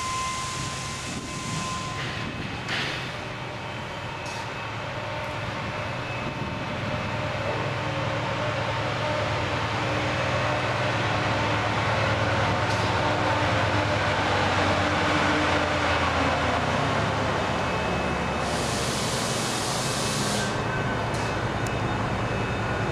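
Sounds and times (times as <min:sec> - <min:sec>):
train rumbling: 0:00.0 - 0:22.9.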